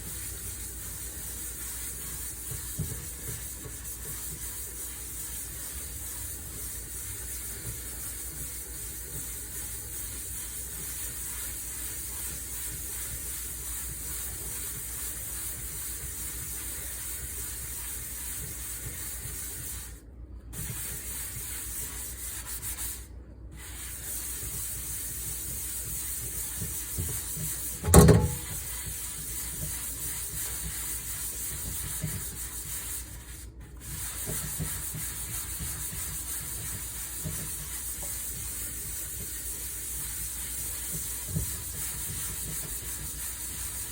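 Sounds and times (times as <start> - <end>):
scrubbing cookware by hand: 0.0 - 43.9
sharp loud knock: 27.8 - 28.5.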